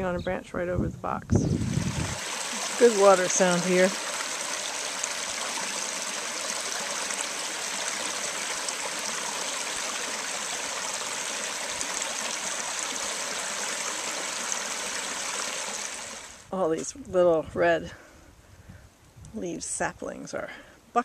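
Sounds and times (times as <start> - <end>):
stream water flowing: 1.5 - 16.5.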